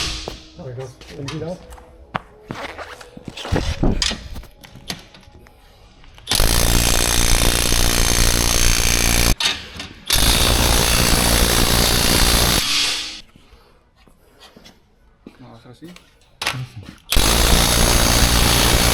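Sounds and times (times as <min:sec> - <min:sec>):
power tool running hard: 0:06.3 - 0:09.4, 0:10.1 - 0:13.2, 0:17.1 - 0:18.9.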